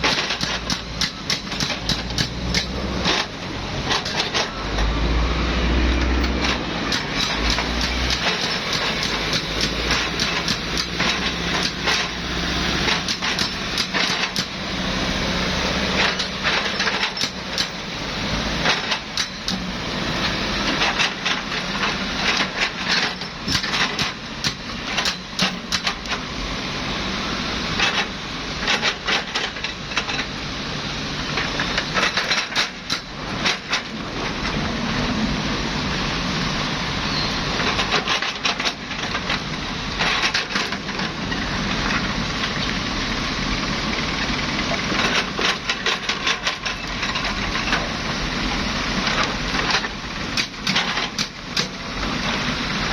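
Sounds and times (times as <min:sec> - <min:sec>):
rocks striking steel bucket: 0:00.0 - 0:04.4, 0:06.2 - 0:14.8
excavator engine: 0:00.0 - 0:52.9.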